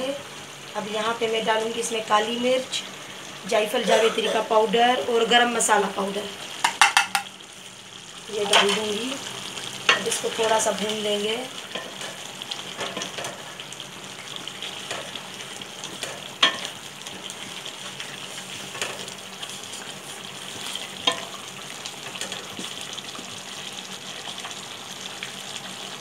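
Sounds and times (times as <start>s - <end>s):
food sizzling in metal pan: 0.0s - 26.0s
spatula knocking against pan: 6.6s - 7.3s.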